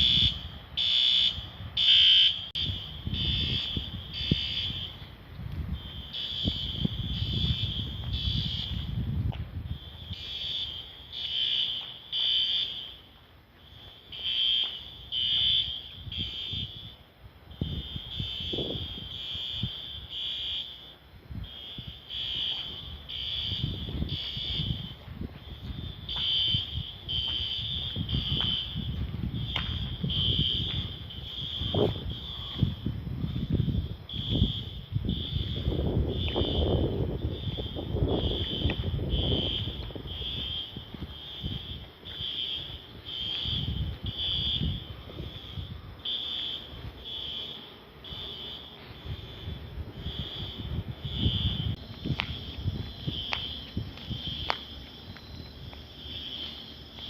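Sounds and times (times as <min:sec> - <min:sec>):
high-pitched electronic alarm beeping: 0:00.0 - 0:05.0, 0:05.7 - 0:09.0, 0:09.6 - 0:17.0, 0:17.6 - 0:57.0.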